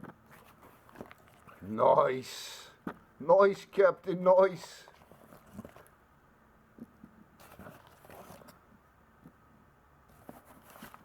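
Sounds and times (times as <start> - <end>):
soft rustling: 10.1 - 11.0.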